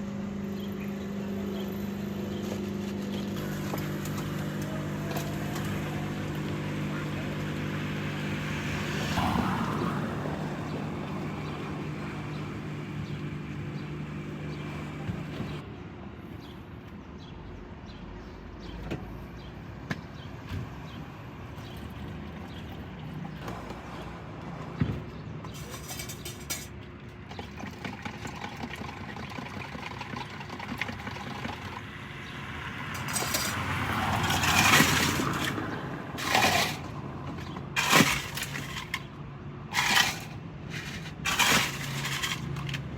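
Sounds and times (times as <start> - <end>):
vehicle engine humming: 0.0 - 17.3, 30.9 - 42.9
vehicle passing: 5.7 - 13.8, 31.8 - 39.0.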